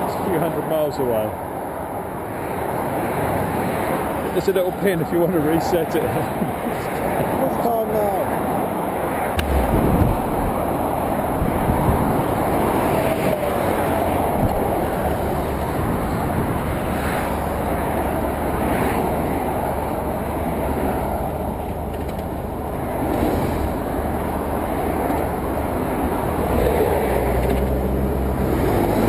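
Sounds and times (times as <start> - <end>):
wind noise on microphone: 9.2 - 29.0
motorcycle running: 9.4 - 29.0.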